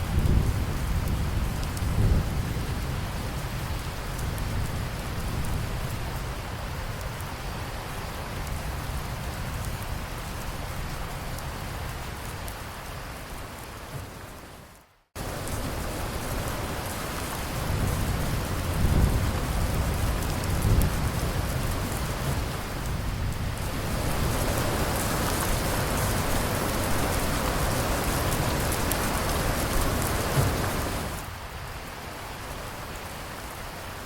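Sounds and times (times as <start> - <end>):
low rumble of thunder: 0.0 - 12.1, 15.2 - 31.3
steady rain falling: 0.0 - 34.0.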